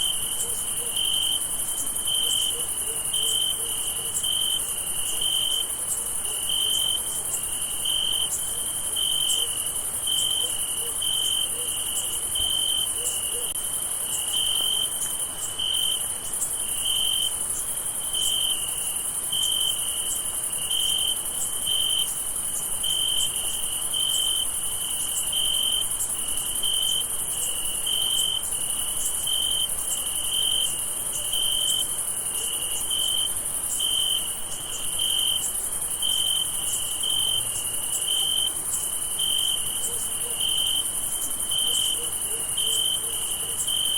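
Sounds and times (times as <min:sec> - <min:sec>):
cricket chirping in pulses: 0:00.0 - 0:43.9.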